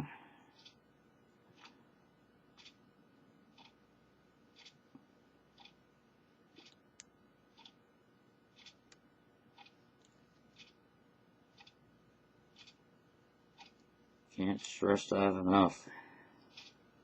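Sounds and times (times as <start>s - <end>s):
faint even ticking: 6.5s - 7.8s, 8.5s - 14.0s.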